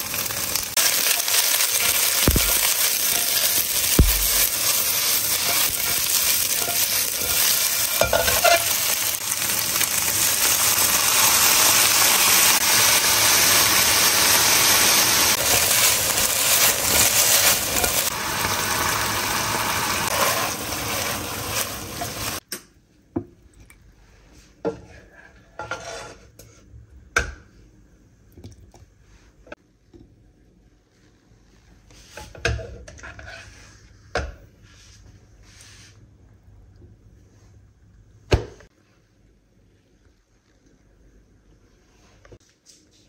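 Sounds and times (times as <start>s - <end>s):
chicken sizzling in a wok: 0.0s - 22.4s.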